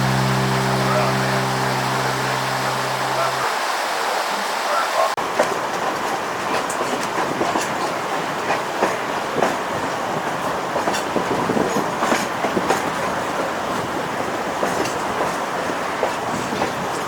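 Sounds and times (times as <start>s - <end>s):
train rumbling on track: 5.2s - 17.0s.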